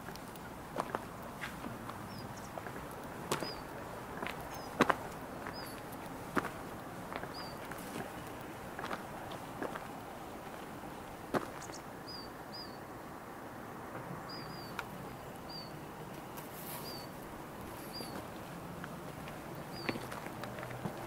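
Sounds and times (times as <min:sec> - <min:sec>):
small bird chirping: 0:03.3 - 0:03.7, 0:04.4 - 0:05.9, 0:07.2 - 0:07.9, 0:11.5 - 0:12.8, 0:14.3 - 0:15.8, 0:16.6 - 0:17.2, 0:17.8 - 0:18.2.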